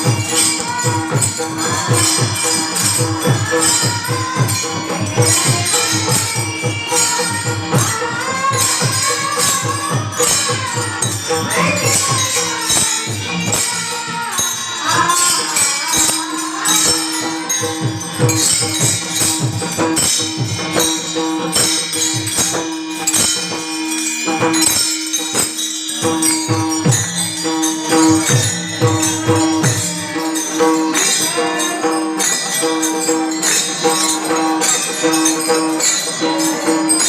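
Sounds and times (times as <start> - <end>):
person singing: 0.0 - 18.3
drum beating steady strokes: 0.0 - 37.0
jingling percussion: 0.0 - 37.0.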